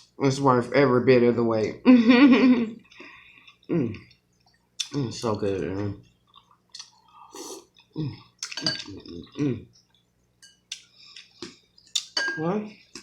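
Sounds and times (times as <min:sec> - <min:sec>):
person chewing food: 0:02.8 - 0:12.2, 0:12.8 - 0:13.0.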